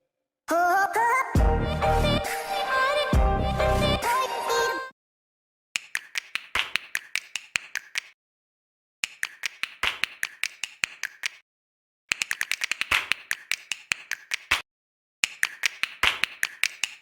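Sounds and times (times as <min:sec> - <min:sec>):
background music: 0:01.4 - 0:04.9
rapid sharp clicking taps: 0:09.0 - 0:11.4, 0:12.1 - 0:14.6, 0:15.2 - 0:17.0.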